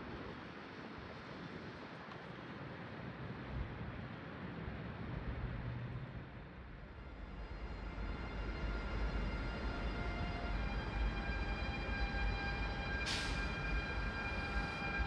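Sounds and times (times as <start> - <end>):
train rumbling: 3.7 - 15.0
short hiss: 13.1 - 13.5.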